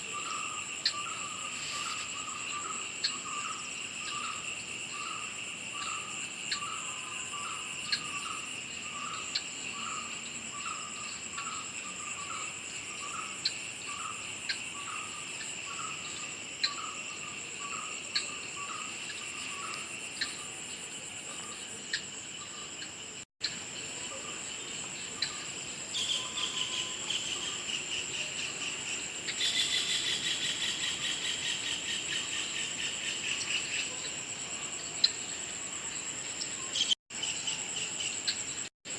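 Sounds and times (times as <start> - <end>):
insects trilling: 0.0 - 38.9
low insect chirp: 0.0 - 38.9
pulsing insect trill: 0.1 - 38.9.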